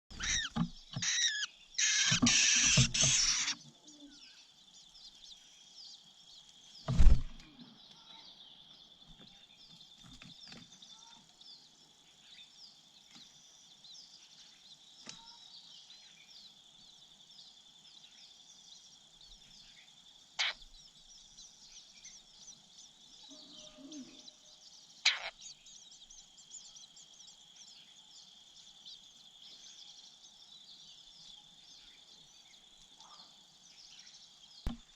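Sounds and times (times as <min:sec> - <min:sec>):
faint bird chirping: 0:00.0 - 0:34.9
sharp knock: 0:34.7 - 0:34.9.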